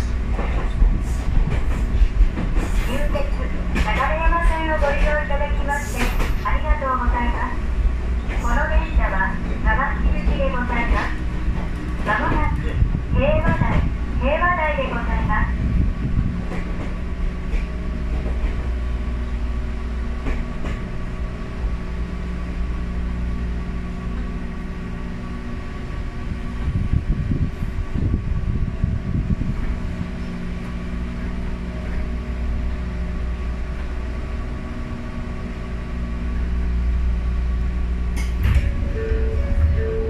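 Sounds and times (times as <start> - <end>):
wheel and rail rumble: 0.0 - 40.0.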